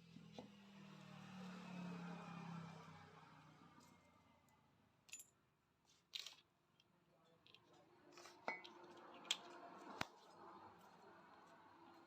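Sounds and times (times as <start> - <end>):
metal parts and tools clinking: 6.1 - 6.5.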